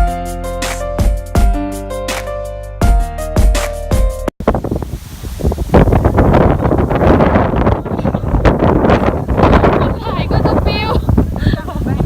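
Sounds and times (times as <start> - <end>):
strong wind on microphone: 4.4 - 12.0.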